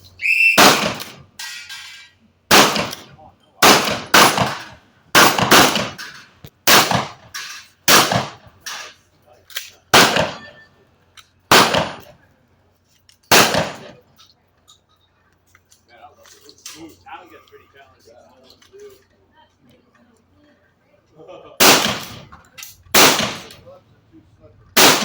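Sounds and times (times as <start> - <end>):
shotgun shots: 0.6 - 1.3, 2.5 - 8.9, 9.9 - 10.6, 11.5 - 12.1, 13.3 - 14.0, 21.6 - 22.3, 22.9 - 23.7, 24.8 - 25.0.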